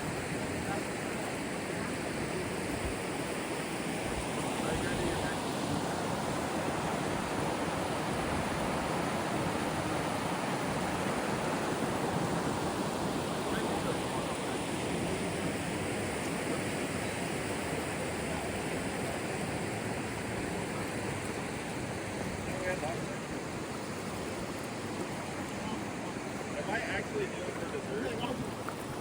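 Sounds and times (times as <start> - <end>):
whitewater rushing over rapids: 0.0 - 29.0.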